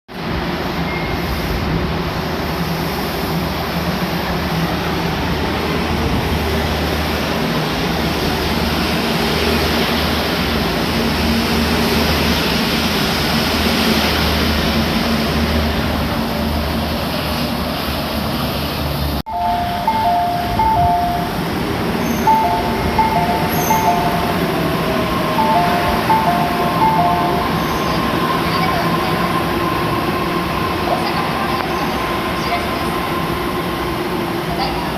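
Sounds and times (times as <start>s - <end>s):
monorail train humming: 0.1s - 34.9s
two-note chime: 19.3s - 28.2s.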